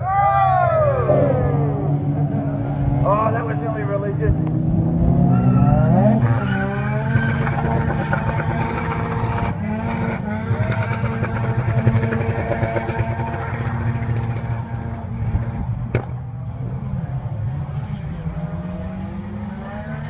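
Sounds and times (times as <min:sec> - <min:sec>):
engine at high revs: 0:01.0 - 0:20.0
tyres spinning: 0:05.3 - 0:14.9.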